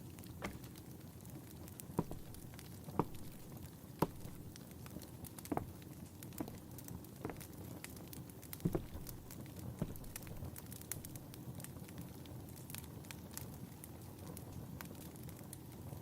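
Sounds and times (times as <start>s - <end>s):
wood fire crackling and popping: 0.0s - 16.0s
dull knocks: 0.4s - 0.7s, 2.0s - 4.5s, 8.6s - 11.2s.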